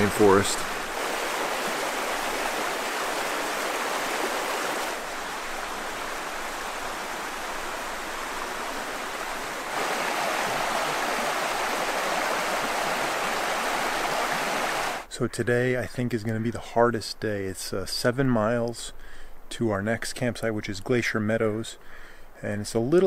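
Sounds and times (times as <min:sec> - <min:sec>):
river water rushing: 0:00.0 - 0:15.1.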